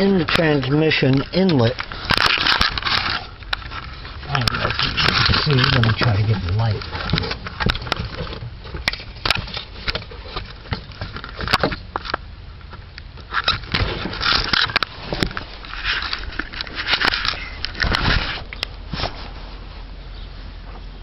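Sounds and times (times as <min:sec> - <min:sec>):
light scrapes: 0:01.8 - 0:08.4.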